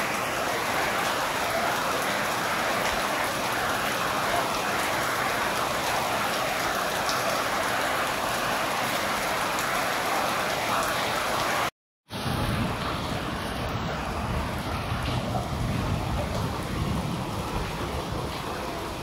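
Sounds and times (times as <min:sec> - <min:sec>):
rain pattering: 0:00.0 - 0:19.0.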